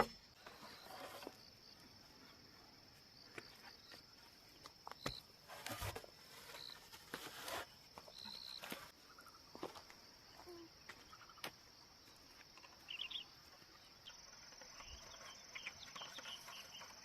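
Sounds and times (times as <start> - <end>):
rustling: 5.0 - 9.0.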